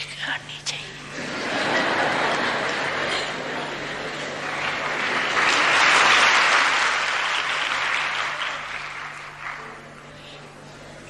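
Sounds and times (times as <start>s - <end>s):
audience clapping: 1.6s - 10.2s.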